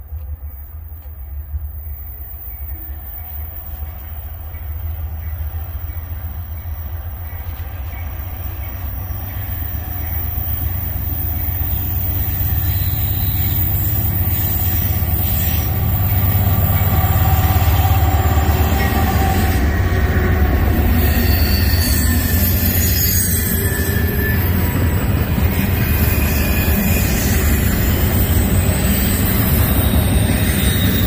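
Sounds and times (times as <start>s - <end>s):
freight train rumbling by: 0.0s - 31.0s
high wheel squeal: 8.2s - 31.0s.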